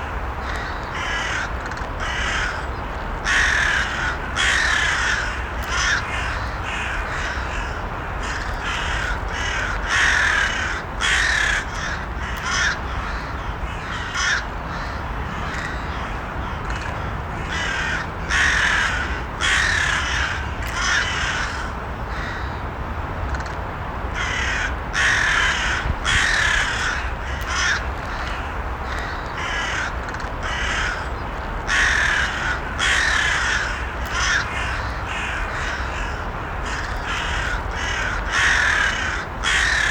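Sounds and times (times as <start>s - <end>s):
crows cawing: 0.4s - 22.6s, 24.2s - 39.9s.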